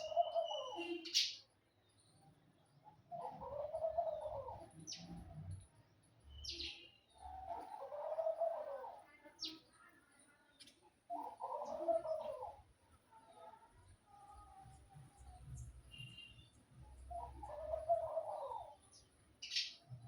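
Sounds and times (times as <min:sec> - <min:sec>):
dove cooing: 0:00.0 - 0:00.8, 0:03.1 - 0:04.8, 0:07.3 - 0:09.0, 0:11.1 - 0:12.7, 0:17.0 - 0:18.9.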